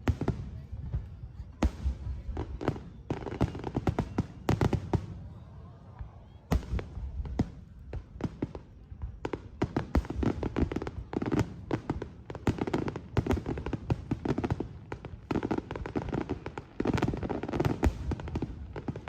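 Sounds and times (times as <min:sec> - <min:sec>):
fireworks crackling pops: 0:06.0 - 0:19.0.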